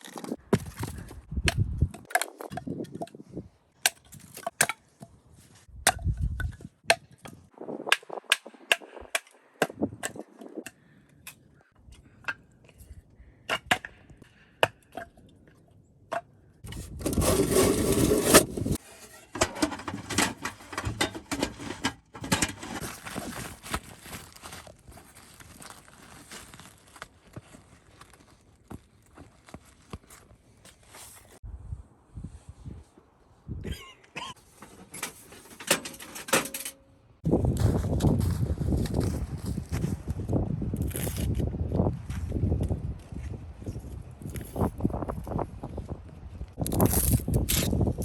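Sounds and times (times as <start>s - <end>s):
rough scraping and rustling: 16.7s - 31.4s, 37.2s - 41.4s, 46.7s - 48.0s.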